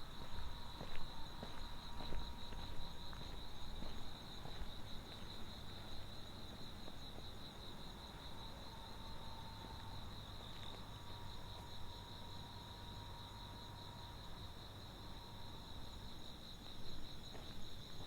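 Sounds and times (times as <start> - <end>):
faint footsteps: 0.0 - 8.4, 9.6 - 11.9, 16.8 - 18.0
crickets chirping: 0.0 - 18.0.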